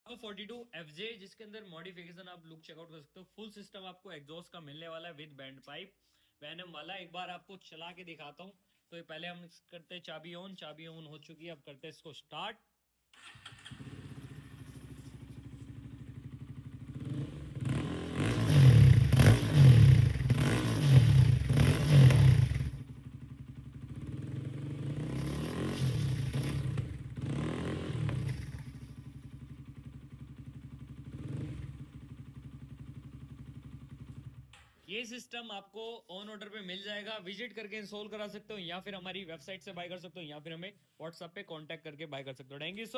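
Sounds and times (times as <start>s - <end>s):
motorcycle engine idling and revving: 13.3s - 34.6s.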